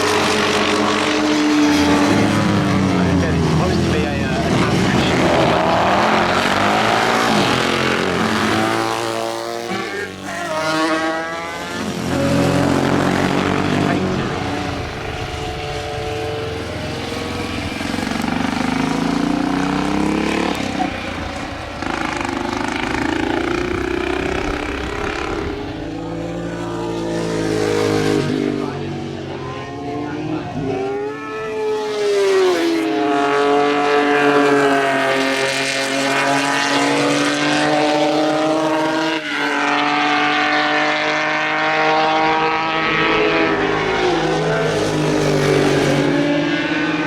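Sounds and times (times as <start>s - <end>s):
racing motorcycles passing: 0.0s - 47.0s.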